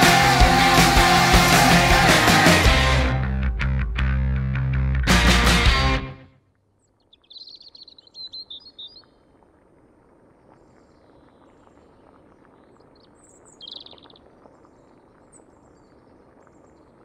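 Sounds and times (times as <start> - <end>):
small birds chirping: 6.8 - 9.2, 10.6 - 17.0.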